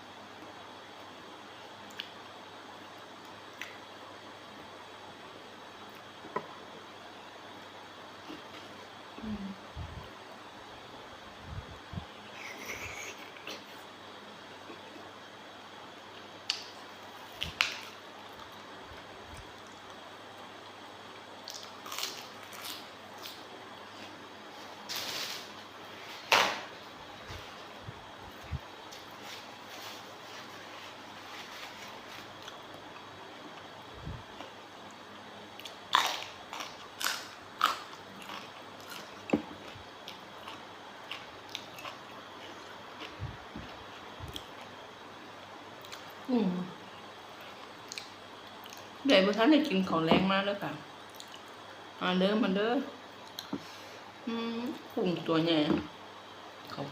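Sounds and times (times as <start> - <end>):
wet chewing with crunches: 35.6 - 44.7.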